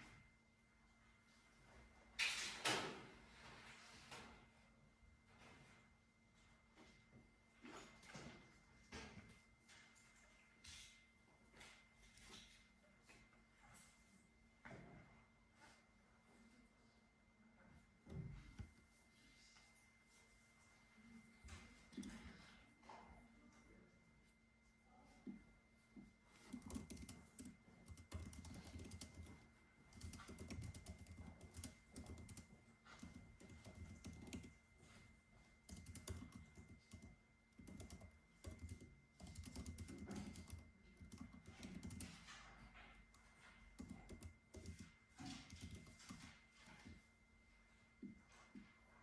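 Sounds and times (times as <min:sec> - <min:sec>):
computer keyboard typing: 0:26.4 - 0:34.7, 0:35.6 - 0:42.4, 0:43.1 - 0:46.9.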